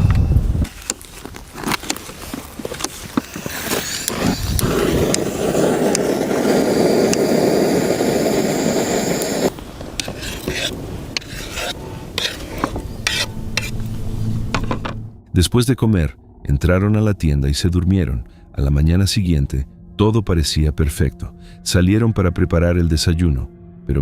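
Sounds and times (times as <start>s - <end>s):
steady rushing noise: 3.8s - 15.2s.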